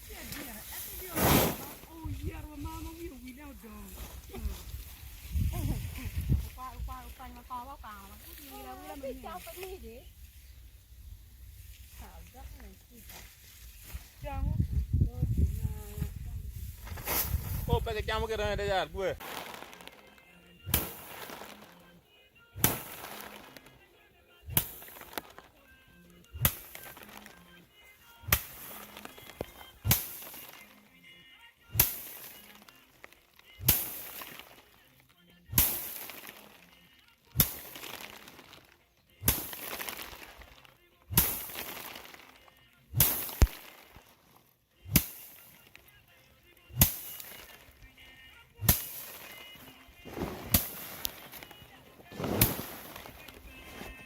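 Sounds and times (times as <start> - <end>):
rice stalks beaten down: 0.0 - 8.4, 19.2 - 21.8, 22.6 - 23.7, 24.5 - 25.5, 26.4 - 27.4, 28.2 - 30.8, 31.7 - 34.8, 35.5 - 36.7, 37.4 - 44.1, 44.9 - 45.8, 46.7 - 48.0, 48.6 - 54.0
stalk bundle swish: 0.0 - 9.9, 15.4 - 17.7, 28.3 - 30.7, 31.8 - 32.5, 33.6 - 34.6, 39.2 - 42.4, 43.0 - 44.0, 48.6 - 54.0.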